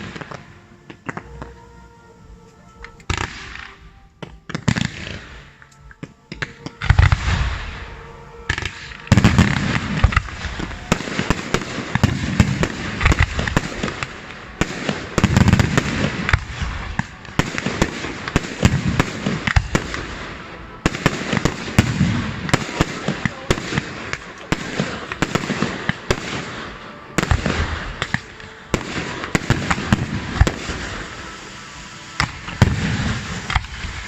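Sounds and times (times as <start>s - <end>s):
fireworks cracking: 0.0s - 34.0s
fireworks booms: 8.5s - 31.2s, 32.2s - 34.0s.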